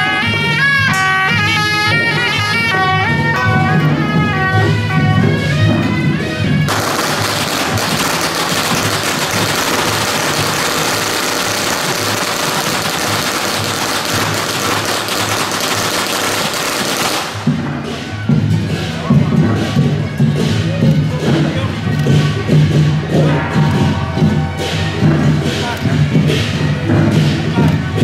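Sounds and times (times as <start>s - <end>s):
band music: 0.0s - 28.0s
firecrackers crackling: 6.6s - 19.0s.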